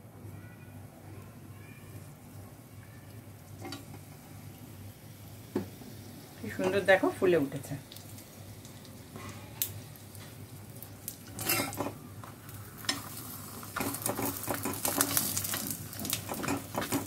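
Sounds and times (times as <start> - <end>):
flatbread sizzling in oil: 1.9 - 17.0
metal spatula scraping griddle: 11.4 - 11.9.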